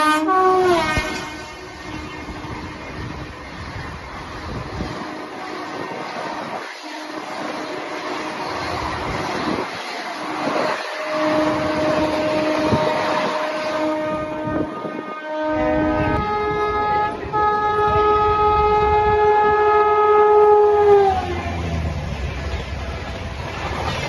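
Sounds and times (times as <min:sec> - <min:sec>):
higher-pitched held horn: 0:00.0 - 0:02.0, 0:10.7 - 0:21.3
train horn blasts: 0:00.0 - 0:03.1, 0:06.8 - 0:08.6, 0:10.4 - 0:21.4
train coaches rushing past: 0:00.0 - 0:24.0.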